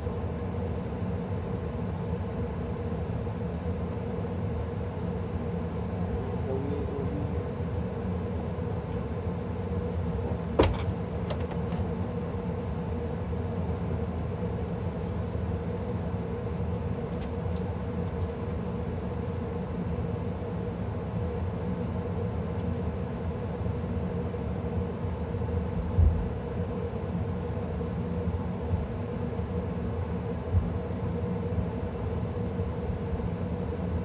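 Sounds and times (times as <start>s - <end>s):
gas furnace humming: 7.4s - 22.6s
short thump: 10.3s - 12.3s.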